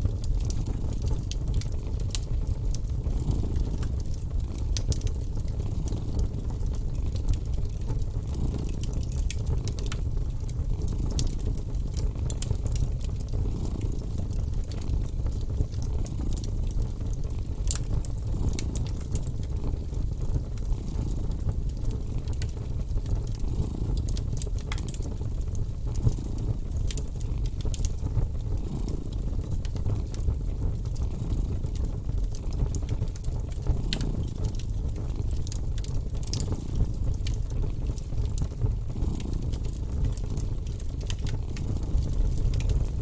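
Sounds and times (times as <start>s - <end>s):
wood fire crackling: 0.0s - 43.0s
cat purring: 3.1s - 4.2s, 7.8s - 9.7s, 13.0s - 27.3s, 28.0s - 32.8s, 36.4s - 37.8s, 38.4s - 40.8s.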